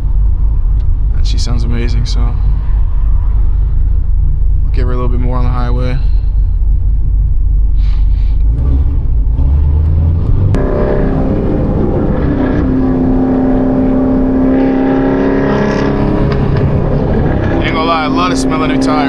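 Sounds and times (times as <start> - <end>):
car engine rumbling under throttle: 0.0 - 19.0.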